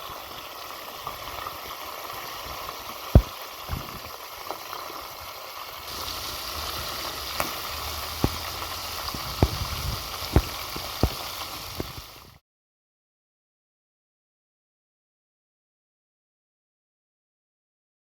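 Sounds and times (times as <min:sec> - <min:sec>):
food sizzling in a pan: 0:00.0 - 0:12.4.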